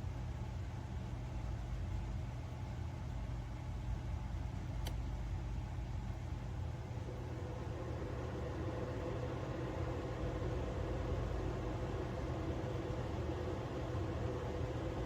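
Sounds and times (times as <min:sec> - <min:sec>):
low machine hum: 0:00.0 - 0:15.0
sharp click: 0:04.8 - 0:05.1.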